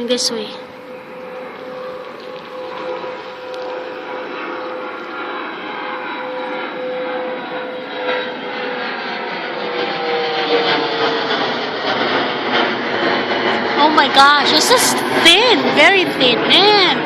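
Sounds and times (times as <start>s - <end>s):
airplane engines whining overhead: 0.0s - 17.0s.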